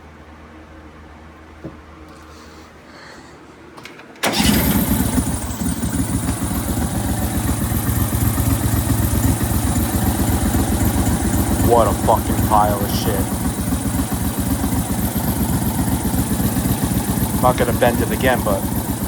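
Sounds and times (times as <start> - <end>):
engine starting and running: 3.8 - 19.0.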